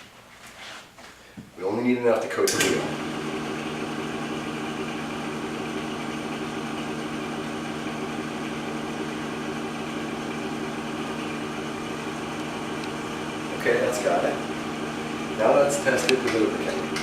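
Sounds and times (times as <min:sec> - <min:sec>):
electric motor humming: 0:02.6 - 0:17.0.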